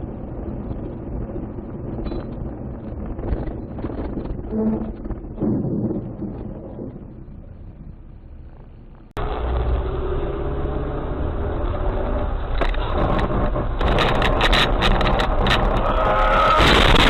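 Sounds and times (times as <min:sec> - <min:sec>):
car engine and road noise: 0:00.0 - 0:17.0
sharp irregular clicks and knocks: 0:12.5 - 0:15.9.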